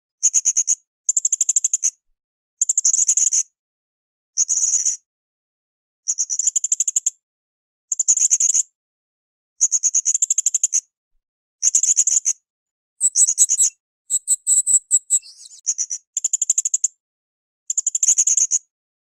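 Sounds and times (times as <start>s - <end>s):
parrot shrill chattering calls: 13.0s - 15.6s.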